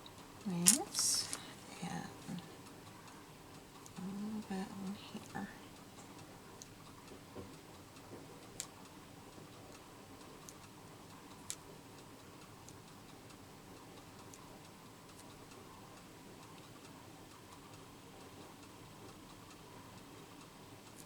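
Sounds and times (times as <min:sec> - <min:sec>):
faint clicks and taps: 0:00.0 - 0:04.4, 0:05.0 - 0:11.8.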